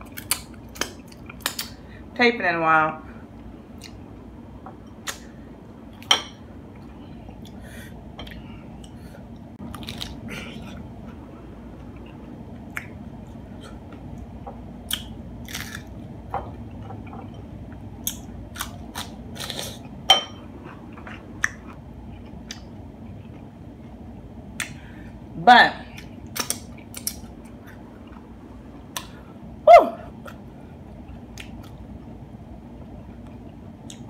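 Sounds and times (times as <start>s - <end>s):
crunching hard-shell tacos: 9.6s - 10.7s, 14.9s - 16.0s.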